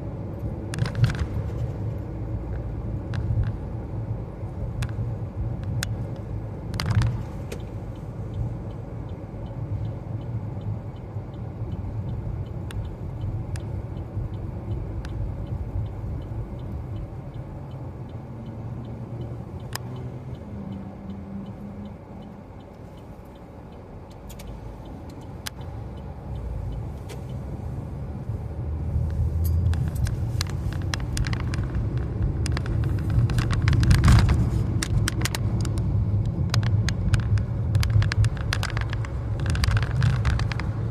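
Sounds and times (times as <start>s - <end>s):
car cabin road rumble: 0.0s - 40.9s
small clicks and rattles: 6.7s - 7.3s, 29.0s - 40.9s.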